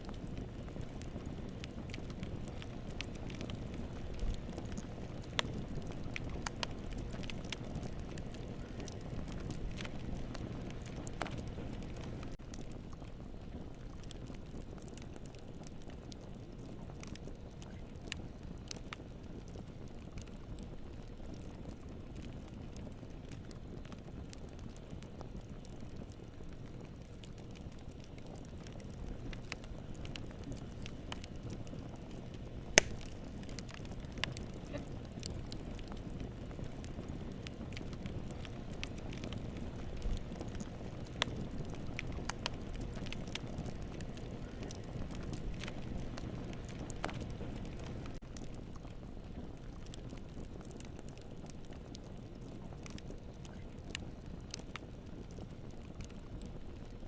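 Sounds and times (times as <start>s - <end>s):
fire crackles and pops: 0.0s - 57.0s
wood fire burning: 0.0s - 57.0s.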